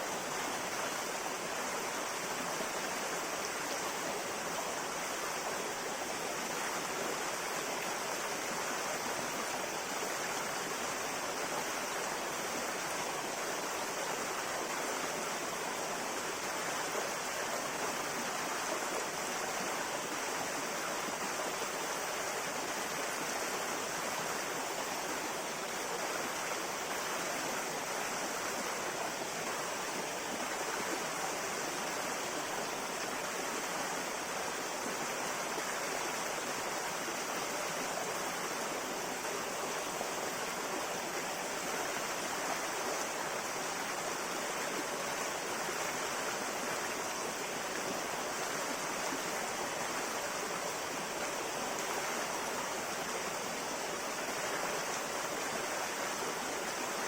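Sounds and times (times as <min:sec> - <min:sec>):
river water flowing over stones: 0:00.0 - 0:57.0.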